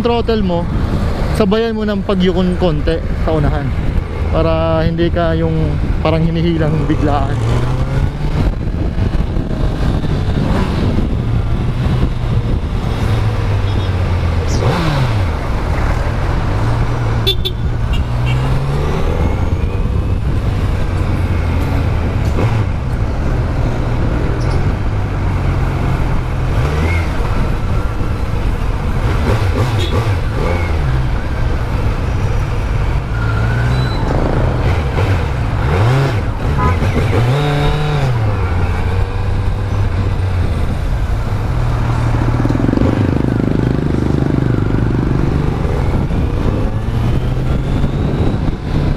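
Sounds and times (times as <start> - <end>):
motorcycle engine revving: 2.4 - 48.9.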